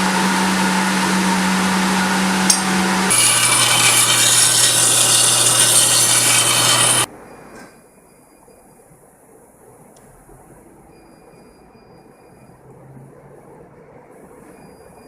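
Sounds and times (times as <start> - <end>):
power tool grinding steel: 0.0 - 7.1.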